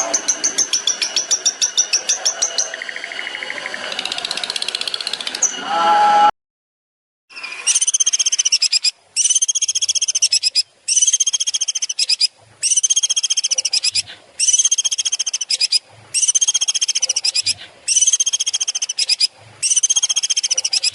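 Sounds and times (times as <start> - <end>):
high pulsed bird trill: 7.3 - 20.9.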